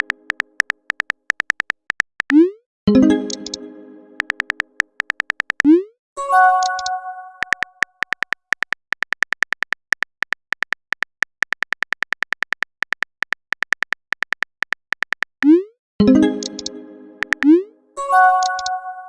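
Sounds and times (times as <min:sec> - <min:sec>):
keyboard tap clicks: 0:00.0 - 0:02.4, 0:03.2 - 0:03.6, 0:04.2 - 0:05.7, 0:06.6 - 0:15.6, 0:16.4 - 0:17.6
app chime: 0:02.9 - 0:04.6, 0:06.2 - 0:07.7, 0:16.0 - 0:19.0.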